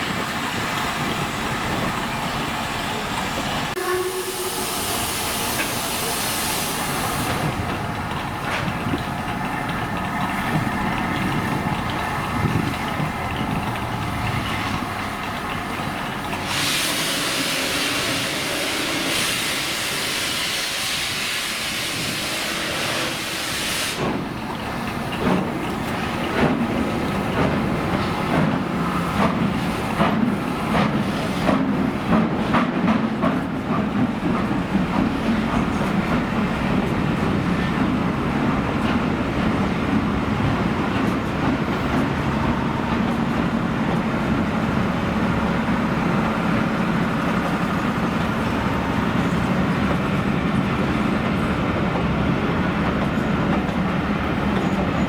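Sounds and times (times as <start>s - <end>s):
rumble of train carriages: 0.0s - 55.0s
train wheels clicking over rail joints: 5.0s - 55.0s.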